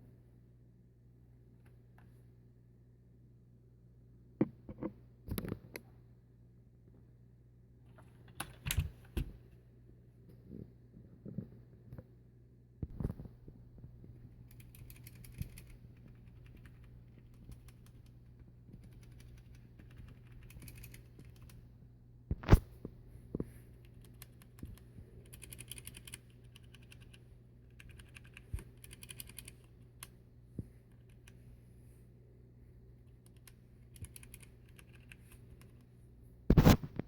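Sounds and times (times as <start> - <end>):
mechanical keyboard typing: 14.5 - 18.1, 18.8 - 21.6, 23.9 - 27.2, 27.8 - 29.7, 33.3 - 35.3.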